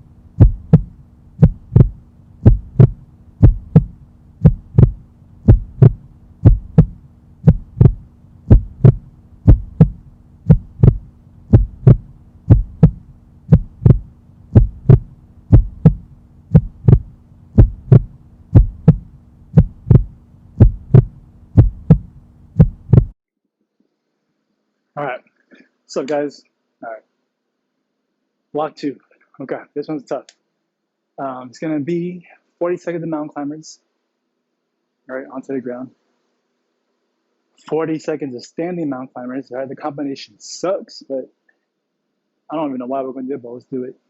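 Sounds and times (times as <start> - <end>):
heartbeat thumps: 0.0 - 23.2
low steady hum: 0.0 - 23.2.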